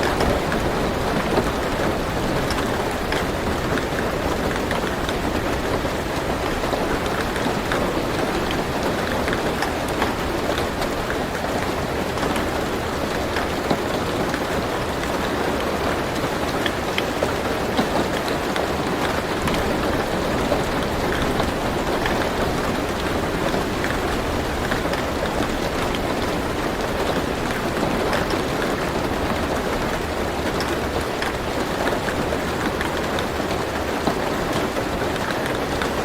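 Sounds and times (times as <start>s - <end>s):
rain pattering on car roof: 0.0s - 36.0s
raindrops ticking: 0.0s - 36.0s.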